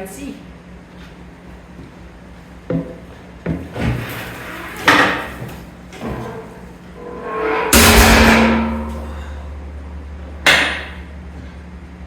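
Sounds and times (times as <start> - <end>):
metal clunks: 6.0 - 9.3
rattling clatter: 6.0 - 9.4.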